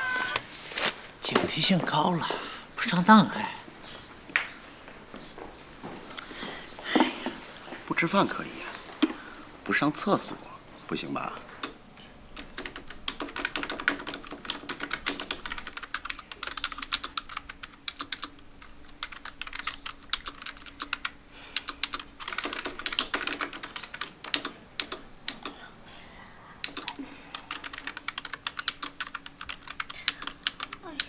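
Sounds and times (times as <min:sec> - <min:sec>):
fast typing on a computer keyboard: 0:12.4 - 0:25.6, 0:26.6 - 0:31.0.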